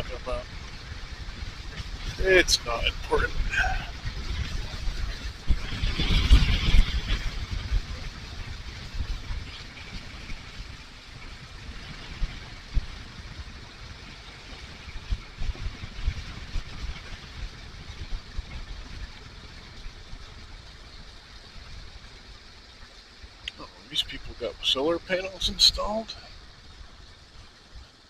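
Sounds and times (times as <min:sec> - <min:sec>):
road hiss: 0:00.0 - 0:05.6
wind buffeting on microphone: 0:00.0 - 0:28.0.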